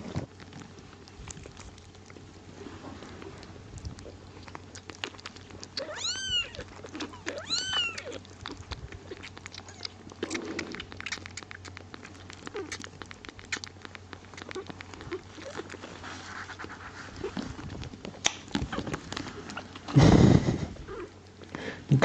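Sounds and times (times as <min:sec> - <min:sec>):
kittens mewing: 0:05.6 - 0:11.4.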